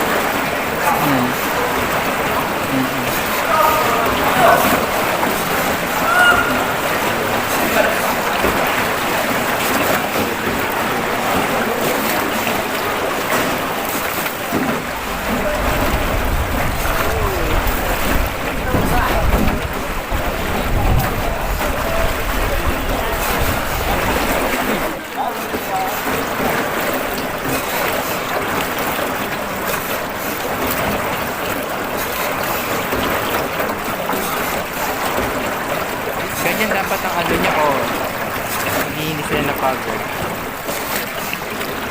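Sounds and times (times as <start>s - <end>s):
water washing against boat: 0.0s - 41.9s
wind rumble on microphone: 14.9s - 24.5s.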